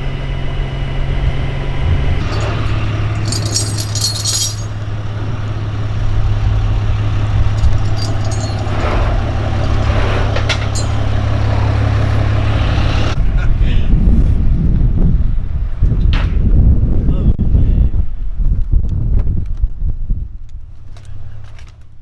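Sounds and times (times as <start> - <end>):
metallic rattling: 2.2 - 4.8, 7.6 - 8.8, 10.6 - 11.1.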